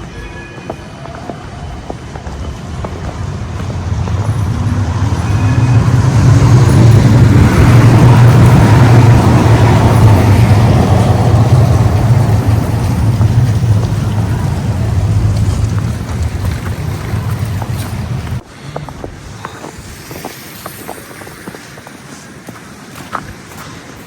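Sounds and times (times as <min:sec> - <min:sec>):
road vehicle passing by: 0:01.1 - 0:19.0.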